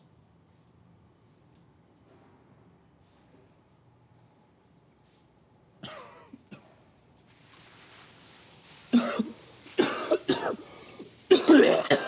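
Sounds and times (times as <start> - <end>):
person coughing: 5.8 - 6.3, 8.8 - 12.0
faint hiss: 6.6 - 12.0.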